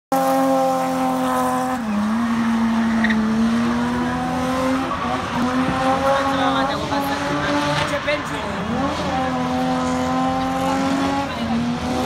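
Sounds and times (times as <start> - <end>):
car engine at high revs: 0.1 - 12.0
tyres squealing on tarmac: 1.7 - 8.4.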